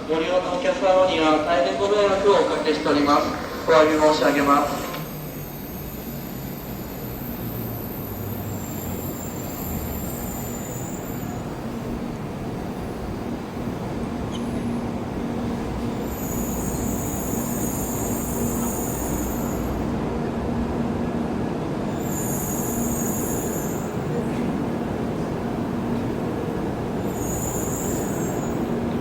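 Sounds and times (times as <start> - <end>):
train rumble: 0.0 - 29.0
high-pitched wheel squealing: 27.0 - 28.7.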